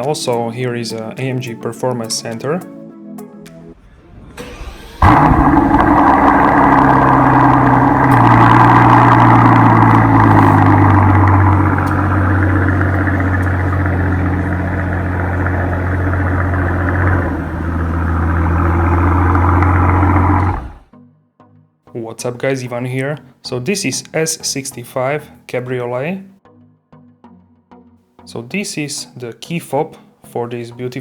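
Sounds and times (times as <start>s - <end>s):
car engine starting and idling: 3.7s - 20.9s.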